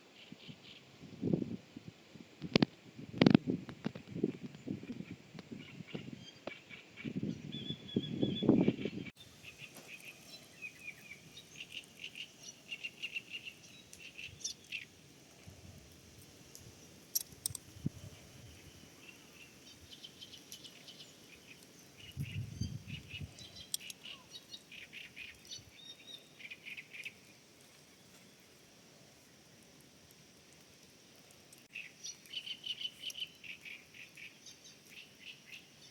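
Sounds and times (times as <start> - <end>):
songbirds chirping: 4.5 - 35.9
sharp clicks: 16.5 - 17.8, 23.4 - 24.1.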